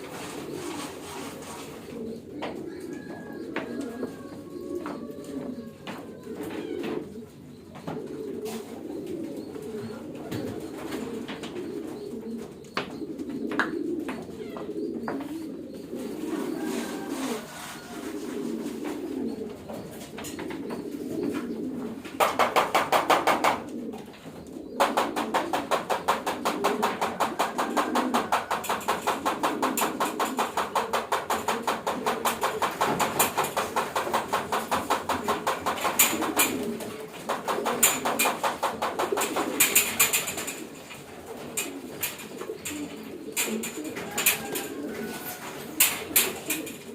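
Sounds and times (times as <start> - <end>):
pigeons cooing: 0.0 - 46.9
fast loud clicks: 24.8 - 41.0.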